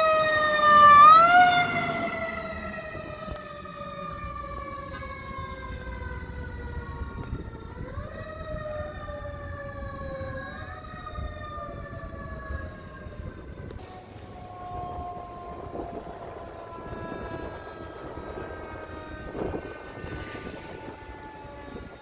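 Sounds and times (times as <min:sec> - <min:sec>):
fire engine siren winding down: 0:00.0 - 0:22.0
traffic rumble: 0:00.0 - 0:22.0.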